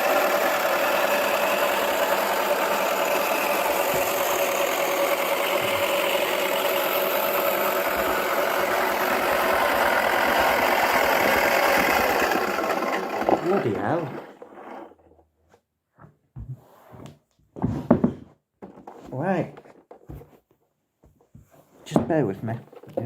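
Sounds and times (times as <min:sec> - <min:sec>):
small electric motor running: 0:00.0 - 0:14.8.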